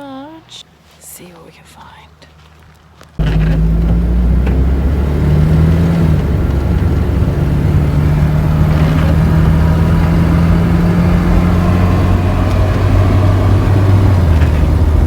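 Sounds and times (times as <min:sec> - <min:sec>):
road noise: 0:01.8 - 0:15.0
van engine running: 0:03.2 - 0:15.0.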